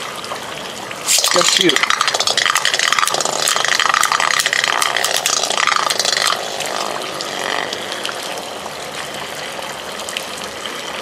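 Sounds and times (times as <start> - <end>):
spinning tops whirring: 1.0 - 8.6
spinning tops clattering: 1.1 - 7.7.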